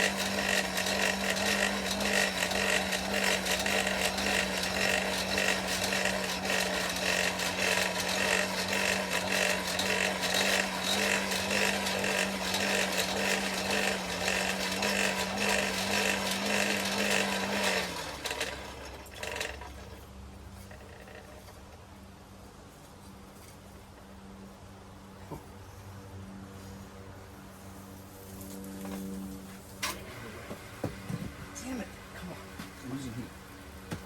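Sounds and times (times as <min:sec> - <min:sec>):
electric motor humming: 0:00.0 - 0:20.0.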